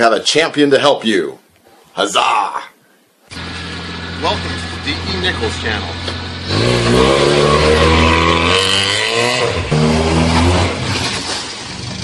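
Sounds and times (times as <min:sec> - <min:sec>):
car engine accelerating: 0:03.3 - 0:12.0.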